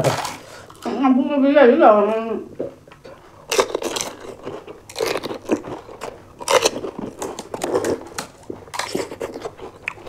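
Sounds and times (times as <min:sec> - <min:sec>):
crisp shells crunching: 0:03.4 - 0:10.0.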